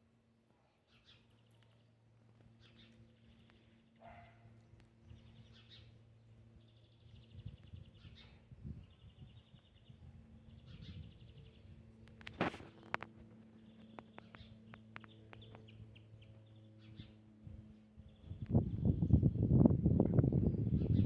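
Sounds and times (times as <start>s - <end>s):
small birds chirping and trilling: 5.0s - 12.3s, 13.5s - 17.3s.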